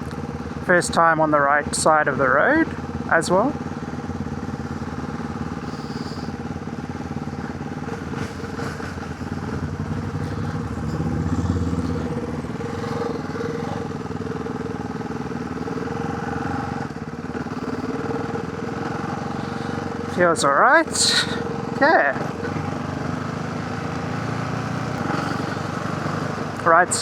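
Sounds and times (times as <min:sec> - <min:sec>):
motorcycle engine running: 0:00.0 - 0:27.0
wind and road noise: 0:00.0 - 0:27.0.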